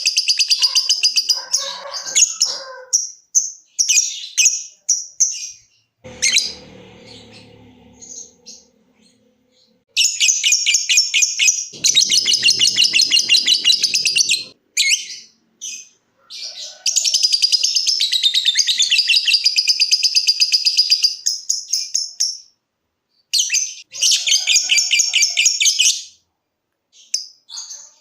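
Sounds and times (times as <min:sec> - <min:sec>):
lovebird chattering trill: 0:11.8 - 0:15.1.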